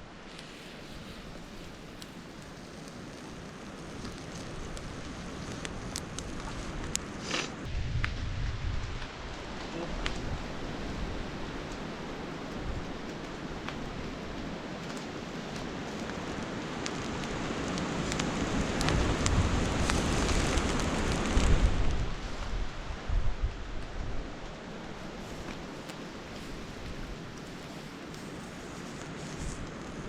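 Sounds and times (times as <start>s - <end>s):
bacon sizzling and popping: 0.6s - 9.5s, 11.5s - 21.6s
low rumble: 7.6s - 11.1s.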